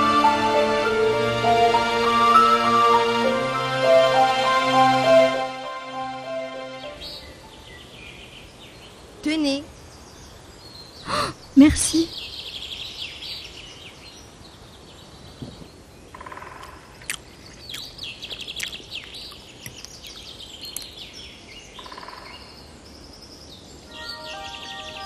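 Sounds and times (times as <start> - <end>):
faint background hiss: 0.0 - 25.0
small birds chirping: 6.9 - 25.0.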